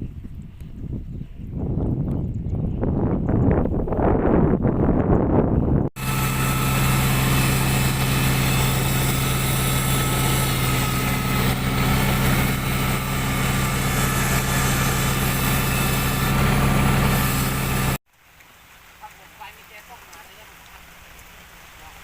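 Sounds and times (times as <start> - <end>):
tractor engine running: 6.0 - 18.0.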